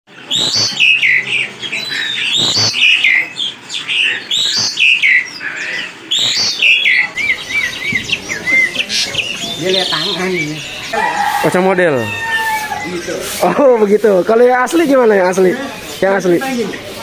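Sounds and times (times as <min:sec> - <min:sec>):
bird calling loudly: 0:00.1 - 0:17.0
wavering bird trill: 0:00.2 - 0:13.5.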